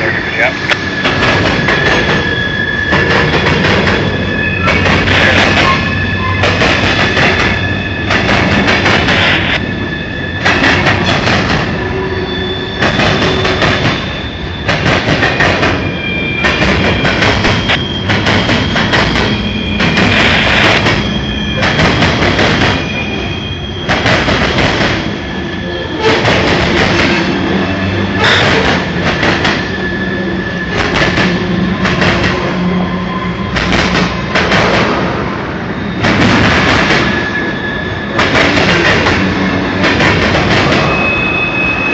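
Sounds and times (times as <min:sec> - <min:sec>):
train wheels clattering over joints: 0:00.7 - 0:09.6, 0:12.7 - 0:22.9, 0:28.1 - 0:29.9, 0:38.2 - 0:41.1
wheel squeal: 0:00.7 - 0:34.4, 0:35.1 - 0:41.9.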